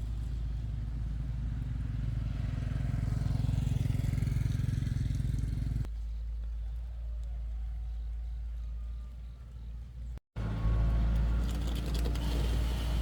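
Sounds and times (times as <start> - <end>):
diesel machinery engine drone: 8.6 - 13.0.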